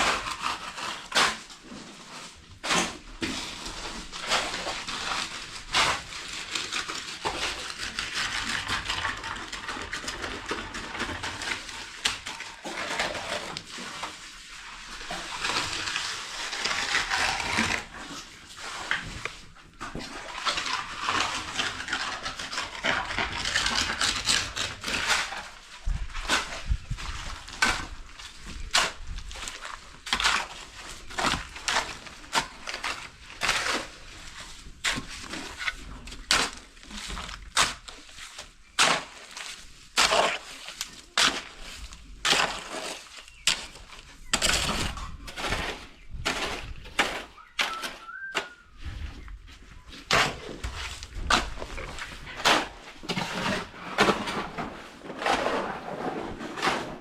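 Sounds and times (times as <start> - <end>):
short sharp scrapes and knocks: 50.0 - 57.0.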